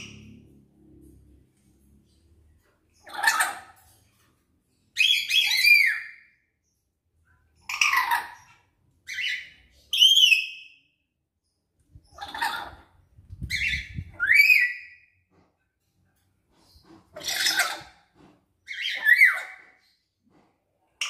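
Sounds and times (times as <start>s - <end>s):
parrots harsh screeches: 3.0s - 4.0s, 5.0s - 6.3s, 7.6s - 10.6s, 12.2s - 12.9s, 13.5s - 15.0s, 16.9s - 19.8s
parrots whistled calls: 5.0s - 6.4s, 7.7s - 11.0s, 13.5s - 15.1s, 18.7s - 19.8s.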